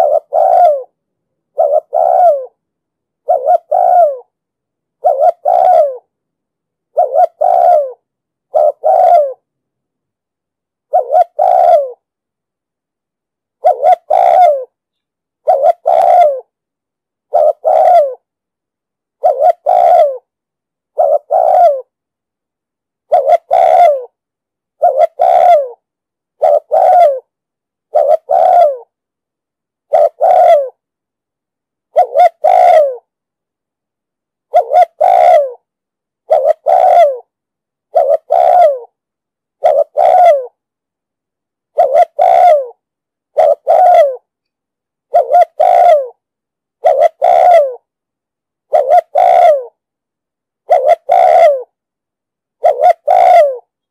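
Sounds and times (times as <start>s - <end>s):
dove cooing: 0.0s - 2.6s, 3.2s - 4.4s, 5.0s - 6.1s, 6.9s - 9.4s, 10.9s - 12.0s, 13.6s - 14.8s, 15.4s - 16.5s, 17.3s - 18.3s, 19.2s - 20.3s, 20.9s - 21.9s, 23.0s - 24.2s, 24.8s - 25.8s, 26.4s - 27.3s, 27.9s - 28.9s, 29.9s - 30.8s, 31.9s - 33.1s, 34.5s - 37.3s, 37.9s - 39.0s, 39.6s - 40.6s, 41.7s - 44.3s, 45.1s - 46.2s, 46.8s - 47.9s, 48.7s - 49.8s, 50.6s - 51.8s, 52.6s - 53.7s.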